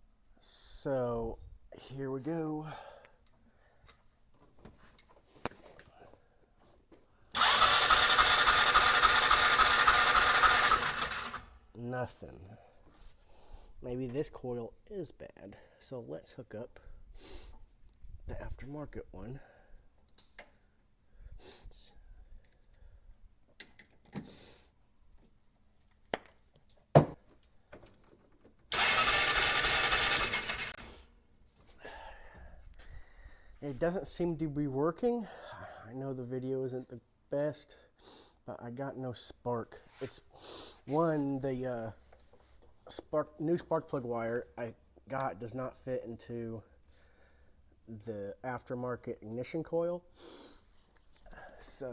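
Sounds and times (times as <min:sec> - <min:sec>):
engine cranking without firing: 0:07.3 - 0:11.6, 0:28.7 - 0:30.8.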